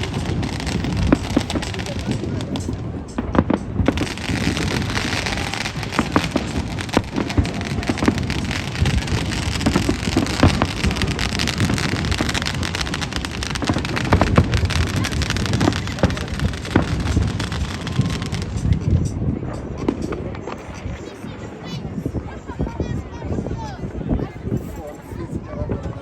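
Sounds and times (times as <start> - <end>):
fireworks cracks and thuds: 0.0 - 19.2
fireworks crackling: 0.0 - 22.4.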